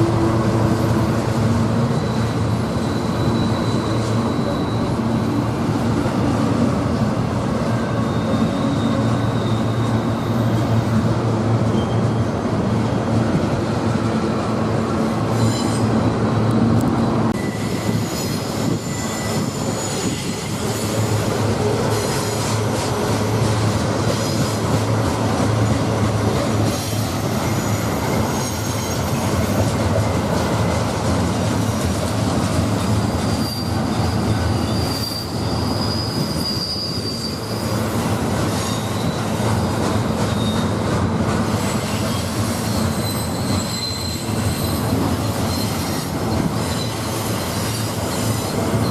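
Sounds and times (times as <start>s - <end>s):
high-pitched wheel squeals: 0.0s - 5.5s, 7.7s - 10.8s, 15.3s - 16.5s, 17.3s - 22.9s, 26.7s - 29.7s, 32.8s - 40.9s, 41.6s - 48.9s
freight train rumbling on rails: 0.0s - 48.9s.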